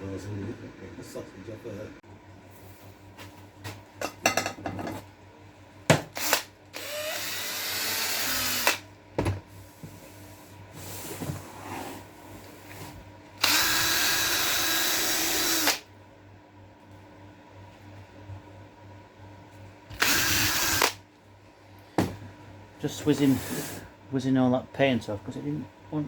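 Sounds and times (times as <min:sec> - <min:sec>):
handheld power tool running: 0:06.1 - 0:08.8, 0:13.4 - 0:15.8, 0:19.9 - 0:21.0.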